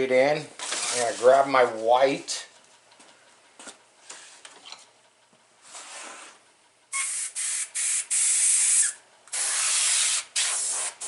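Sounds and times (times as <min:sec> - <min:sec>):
airbrush spraying hiss: 0:07.0 - 0:11.0.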